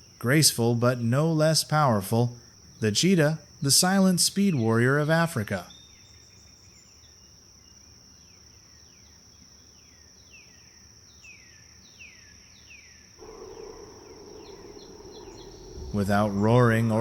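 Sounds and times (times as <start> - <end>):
bird whistled calls: 13.2 - 17.0
high insect drone: 13.2 - 17.0
low steady noise: 13.2 - 17.0.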